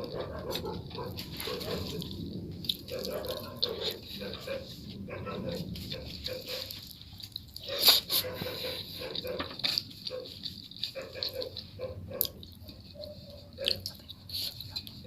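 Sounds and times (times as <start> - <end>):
wet chewing: 0.0 - 15.0
mouth smacks: 12.2 - 15.0.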